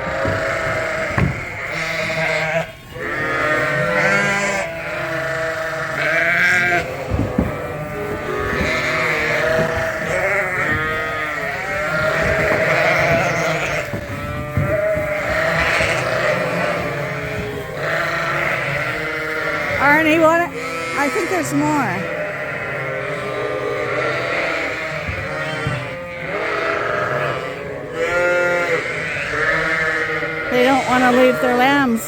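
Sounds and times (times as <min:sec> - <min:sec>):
sheep bleating: 0:00.0 - 0:32.0
short knocks: 0:00.2 - 0:01.6, 0:06.9 - 0:11.0.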